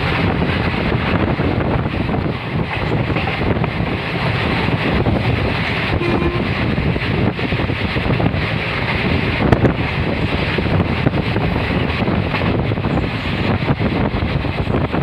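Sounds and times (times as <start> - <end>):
train rumbling: 0.0 - 15.0
wind buffeting microphone: 0.0 - 15.0.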